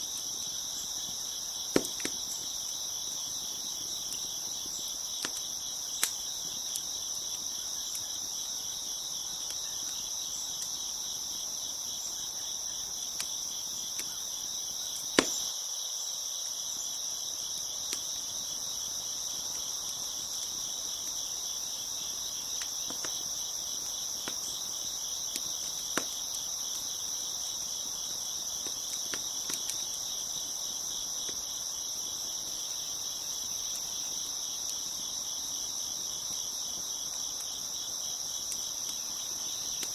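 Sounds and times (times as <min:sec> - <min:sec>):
wood fire popping and crackling: 0:00.0 - 0:12.2, 0:17.5 - 0:39.9
crickets chirping: 0:00.0 - 0:39.9.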